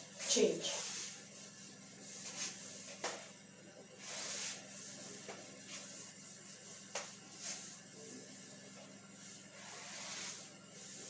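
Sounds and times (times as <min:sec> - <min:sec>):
faint low hum: 0:00.0 - 0:11.0
eraser rubbing on whiteboard: 0:09.2 - 0:11.0.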